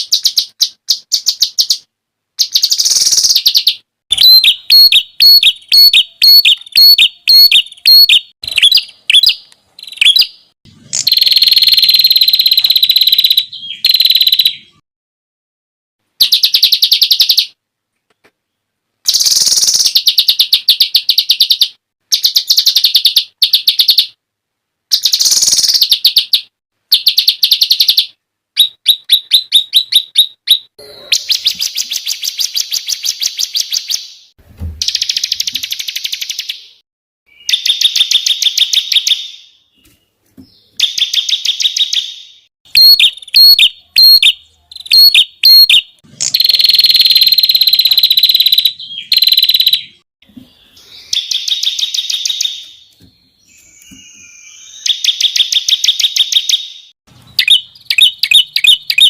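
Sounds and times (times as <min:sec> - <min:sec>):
songbird trills: 0:00.0 - 0:14.8, 0:34.8 - 0:59.0.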